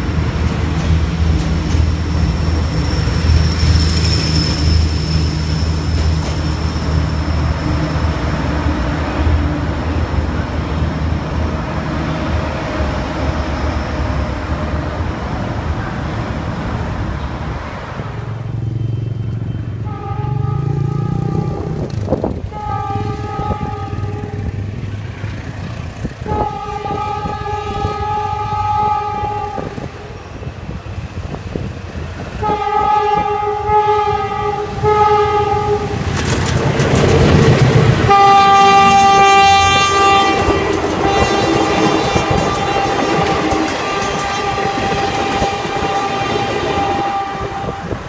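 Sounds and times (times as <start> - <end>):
diesel train running past: 0.0 - 48.0
train horn blasts: 19.8 - 24.7, 26.2 - 30.2, 32.4 - 36.1, 38.0 - 48.0.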